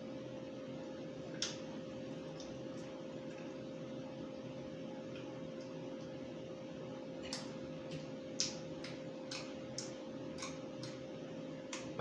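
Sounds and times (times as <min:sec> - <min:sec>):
steady electrical hum: 0:00.0 - 0:12.0
wet chewing clicks and smacks: 0:01.3 - 0:03.6, 0:07.2 - 0:12.0.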